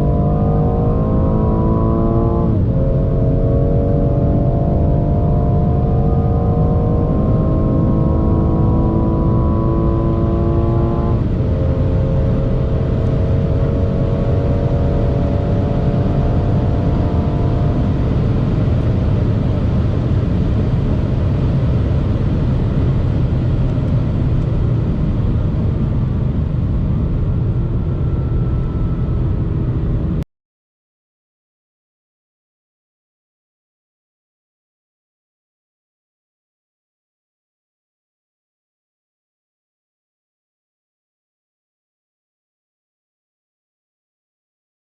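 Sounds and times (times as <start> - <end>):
car engine at full throttle: 0.0 - 30.2
wind and road noise: 0.0 - 30.2.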